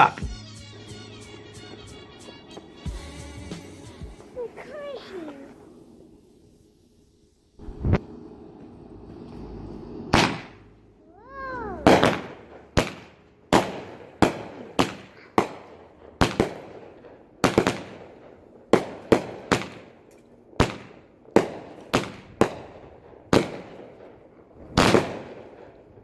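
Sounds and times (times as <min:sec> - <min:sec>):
fireworks bangs: 0:07.6 - 0:10.7, 0:11.3 - 0:20.0, 0:20.6 - 0:25.8.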